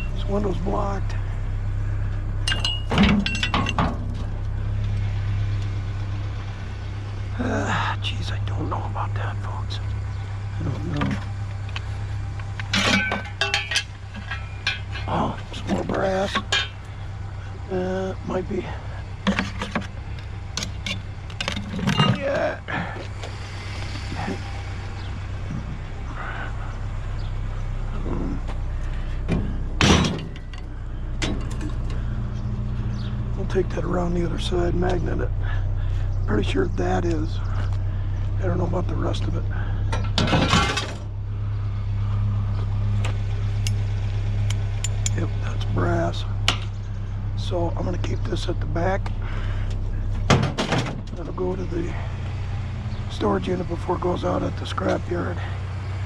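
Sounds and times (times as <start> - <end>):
engine idling: 0.0 - 56.0
steady low hum: 0.0 - 56.0
scrap metal clanking: 2.4 - 4.2, 12.6 - 17.0, 20.6 - 22.4, 29.3 - 32.0, 39.9 - 41.1
loud metallic clank: 12.7 - 15.2, 16.3 - 16.9, 29.3 - 30.6.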